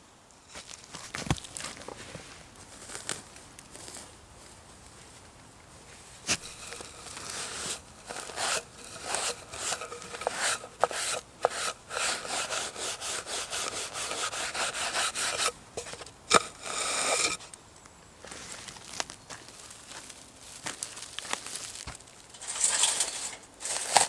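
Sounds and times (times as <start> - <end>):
hand tool scraping wood: 6.3 - 17.5.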